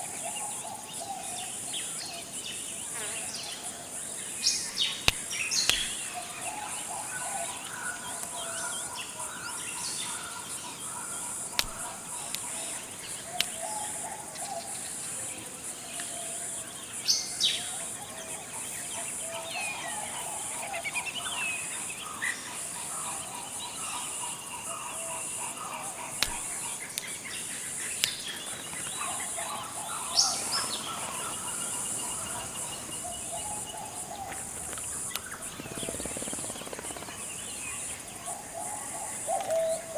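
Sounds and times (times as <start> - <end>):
forest birds chirping: 0.0 - 39.9
high insect-like hiss: 0.0 - 39.9
sharp clicks: 4.7 - 6.1, 11.5 - 13.7, 26.2 - 27.1, 28.0 - 28.5.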